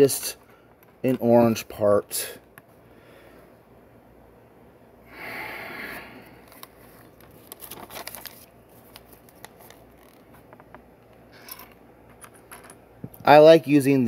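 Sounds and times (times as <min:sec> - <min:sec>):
plastic pieces rustling: 0:07.1 - 0:10.3.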